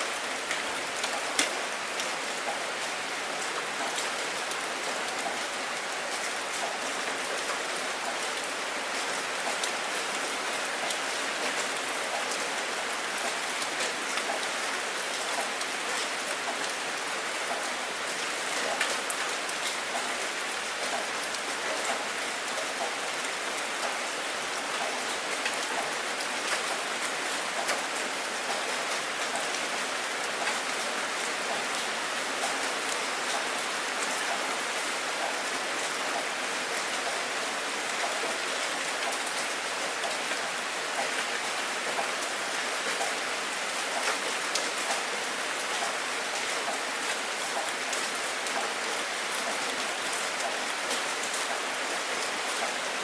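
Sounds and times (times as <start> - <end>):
raindrops ticking on hard surface: 0.4 - 2.9.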